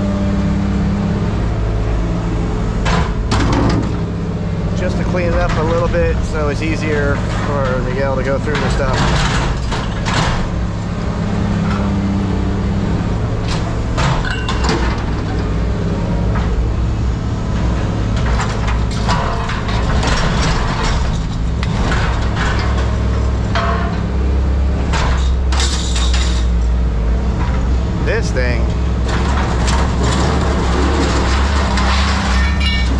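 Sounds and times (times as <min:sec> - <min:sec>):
scrap metal clanking: 0:29.0 - 0:32.9.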